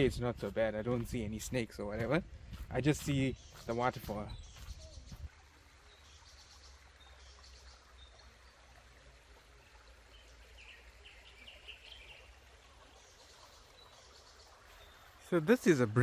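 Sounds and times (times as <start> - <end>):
forest ambience: 0.0 - 16.0
bird chirping: 3.0 - 8.6, 10.1 - 15.8.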